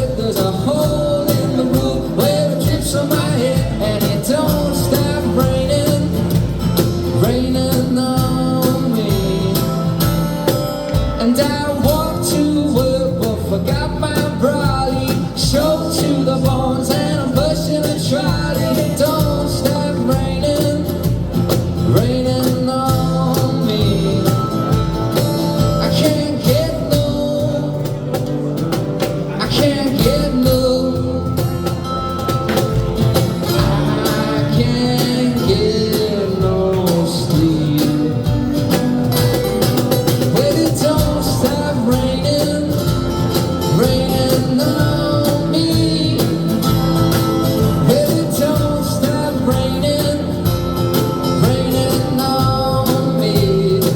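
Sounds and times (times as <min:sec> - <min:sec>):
live band playing a song: 0:00.0 - 0:53.9
person singing: 0:33.4 - 0:38.6.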